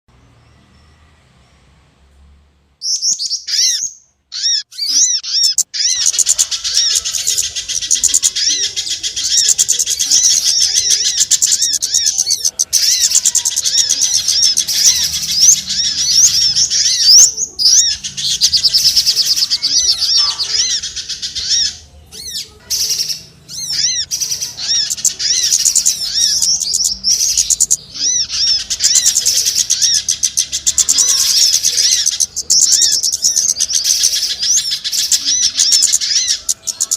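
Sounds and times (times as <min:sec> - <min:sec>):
small birds chirping: 0:02.8 - 0:36.9.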